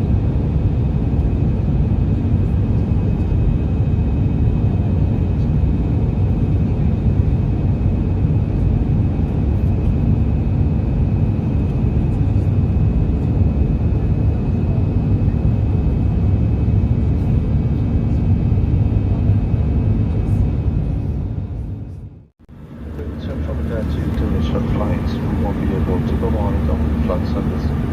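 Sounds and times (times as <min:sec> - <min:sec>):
jet engine rumble in cabin: 0:00.0 - 0:27.9
faint high steady whine: 0:22.5 - 0:27.9.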